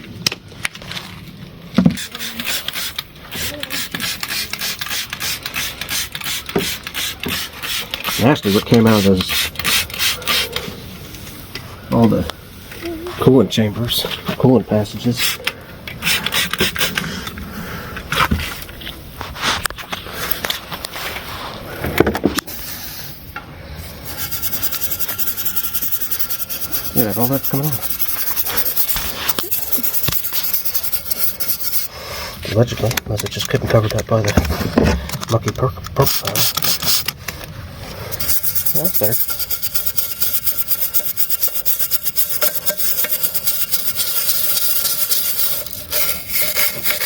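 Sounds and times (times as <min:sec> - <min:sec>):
hand tools scraping metal: 0:02.0 - 0:10.8, 0:15.1 - 0:17.3, 0:24.0 - 0:31.9, 0:38.0 - 0:47.0
scrubbing metal parts: 0:02.0 - 0:10.8, 0:13.9 - 0:17.4, 0:23.9 - 0:34.3, 0:35.1 - 0:47.0.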